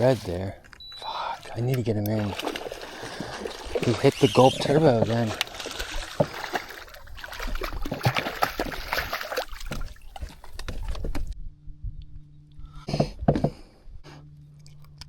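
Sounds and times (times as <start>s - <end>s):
water splashing and sloshing: 0.0s - 11.4s
low hum: 10.2s - 15.0s.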